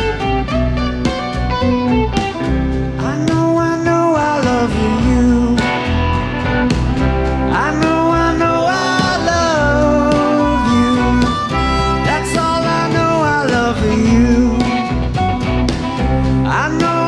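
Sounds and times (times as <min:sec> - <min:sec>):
guitar: 0:00.0 - 0:17.0
steady bass: 0:00.0 - 0:17.0
lead instrument sliding between notes: 0:10.1 - 0:13.0.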